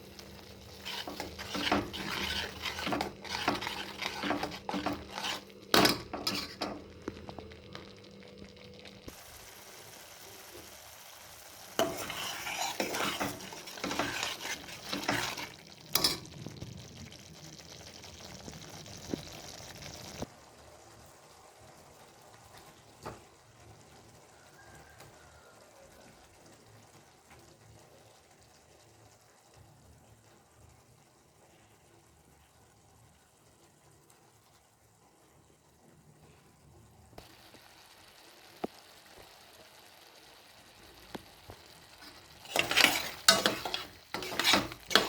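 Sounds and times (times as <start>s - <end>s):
food sizzling in a pan: 0.0s - 45.0s
spoon scraping a pan: 0.2s - 7.2s, 11.8s - 16.4s, 41.9s - 45.0s.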